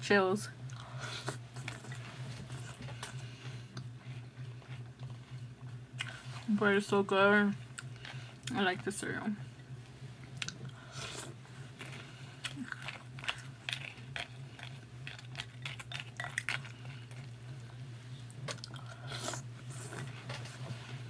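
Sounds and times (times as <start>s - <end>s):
steady low hum: 0.0s - 21.0s
crunchy chewing: 10.4s - 17.4s.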